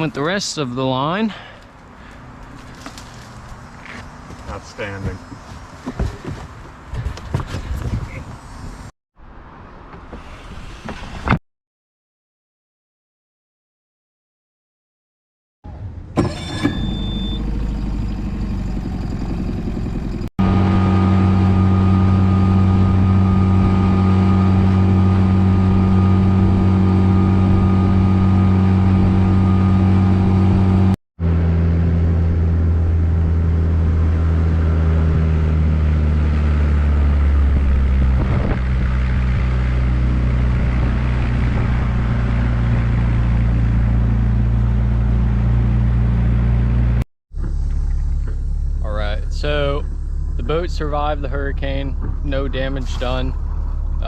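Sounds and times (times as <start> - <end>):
boat engine running: 16.2 - 46.1, 46.7 - 54.0.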